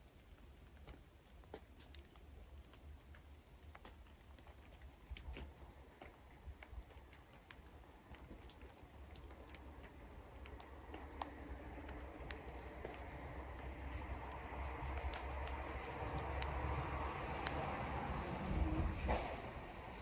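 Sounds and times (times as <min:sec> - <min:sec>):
sharp ticks: 0:09.2 - 0:18.5.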